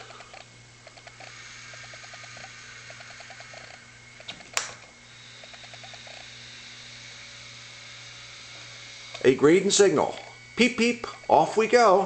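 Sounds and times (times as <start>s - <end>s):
sharp click: 0.3s - 4.9s.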